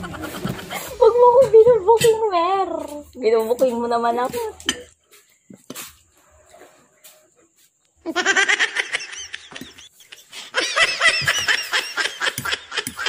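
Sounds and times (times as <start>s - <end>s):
person laughing hard: 0.0s - 1.0s, 8.1s - 13.0s.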